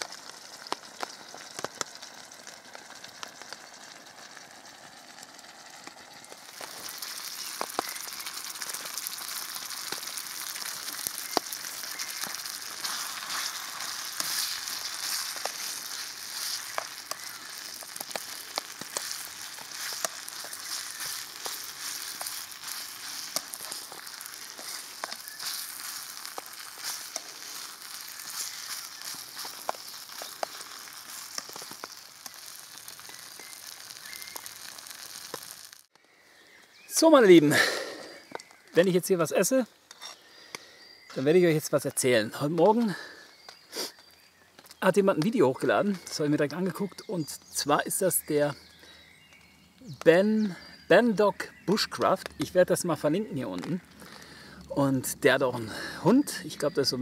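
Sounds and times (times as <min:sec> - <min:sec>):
food sizzling in a pan: 0:00.0 - 0:35.9
oil pops and spits: 0:00.0 - 0:35.9.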